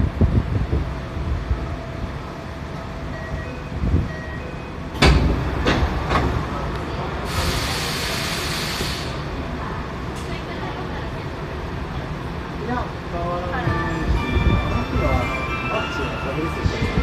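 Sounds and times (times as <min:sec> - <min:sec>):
subway car rumble: 0:00.0 - 0:17.0
compressed air hissing: 0:07.3 - 0:09.2.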